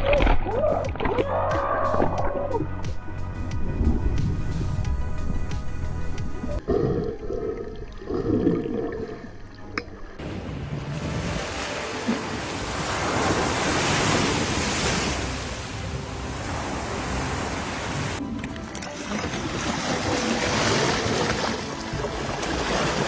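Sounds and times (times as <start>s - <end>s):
wind noise on microphone: 0.0s - 6.6s
ocean surf: 10.2s - 23.0s.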